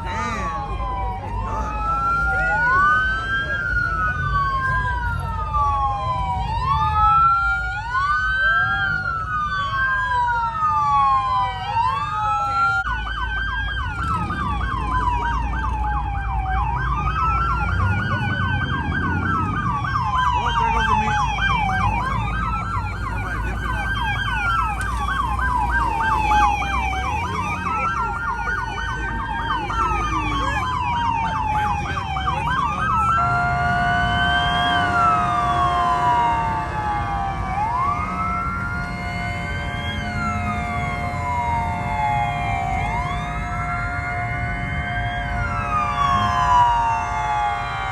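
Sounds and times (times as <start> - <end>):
low engine rumble: 0.0 - 47.9
police sirens wailing: 0.0 - 47.9
rapid pulsing siren tone: 0.0 - 47.9
steady blaring horn: 20.4 - 42.7.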